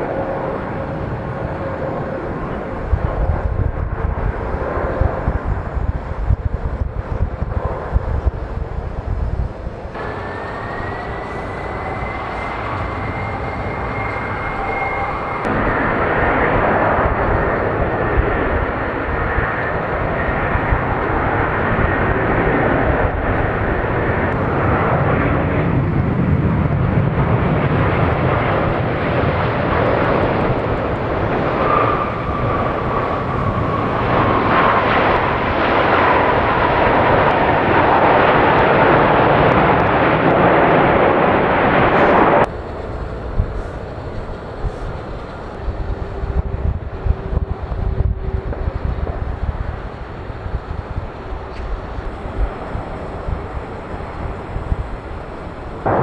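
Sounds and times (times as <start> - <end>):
high engine whine: 0.0 - 56.0
jet engines at takeoff: 0.0 - 56.0
second whine dropping in pitch: 9.9 - 22.2, 30.0 - 43.9, 51.5 - 56.0.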